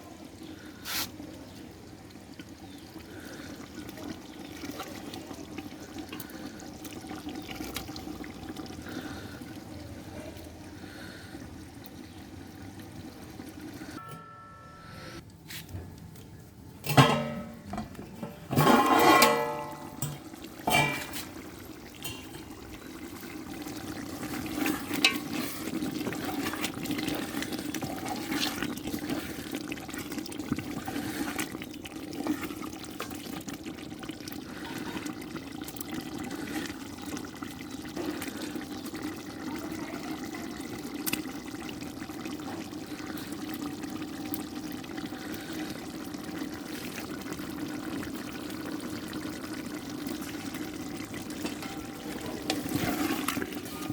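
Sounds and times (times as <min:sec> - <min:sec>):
curry bubbling in a pot: 0:00.0 - 0:14.0, 0:17.1 - 0:53.9.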